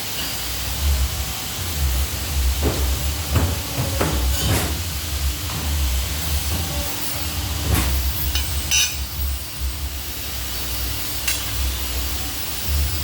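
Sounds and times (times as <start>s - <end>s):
pipe-bending machine hiss and rumble: 0.0s - 13.0s
sharp metallic knocks: 2.2s - 5.8s.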